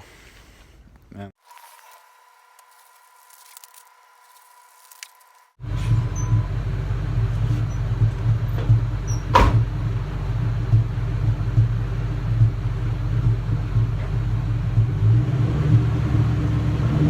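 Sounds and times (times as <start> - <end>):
car engine idling: 5.5 - 17.0
sharp knock: 9.3 - 9.7.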